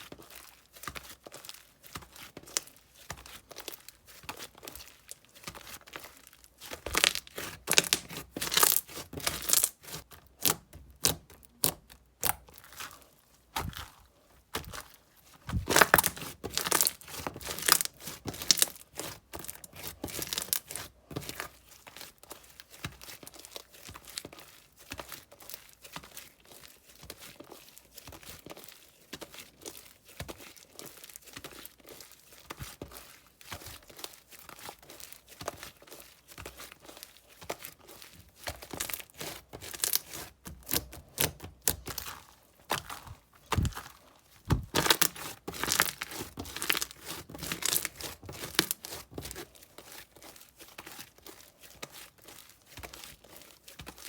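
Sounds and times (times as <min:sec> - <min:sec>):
slime crackling and popping: 0:02.0 - 0:14.9, 0:15.5 - 0:21.4, 0:36.4 - 0:49.5.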